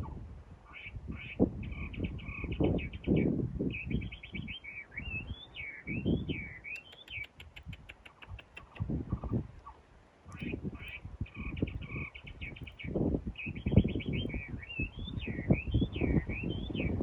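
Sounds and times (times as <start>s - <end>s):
bird singing: 0.7s - 9.4s, 10.3s - 17.0s.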